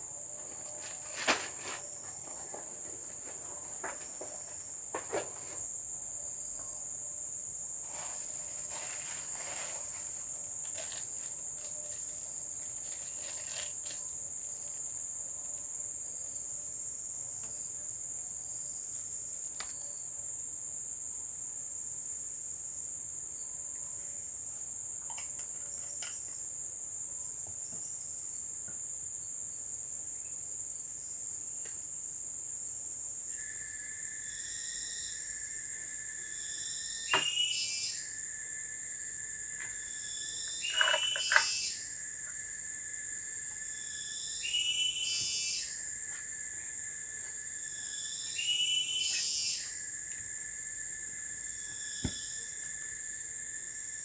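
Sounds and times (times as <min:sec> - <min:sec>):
lower insect drone: 0:00.0 - 0:54.0
high-pitched insect drone: 0:33.3 - 0:54.0.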